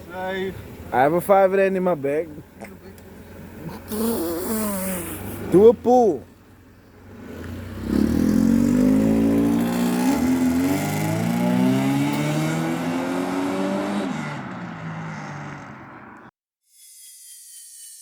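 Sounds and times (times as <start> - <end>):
car engine accelerating hard: 7.1 - 16.2.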